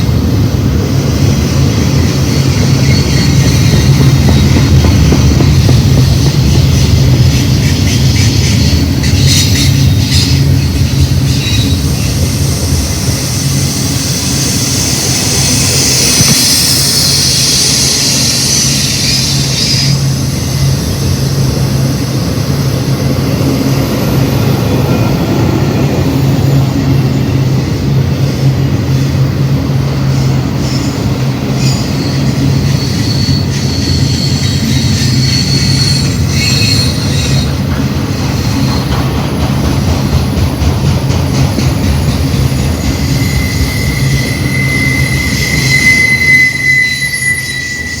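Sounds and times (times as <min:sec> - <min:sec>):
freight train wheels rumbling: 0:00.0 - 0:48.0
high hiss: 0:06.5 - 0:22.1
faint high squeals: 0:30.6 - 0:37.6, 0:42.8 - 0:48.0.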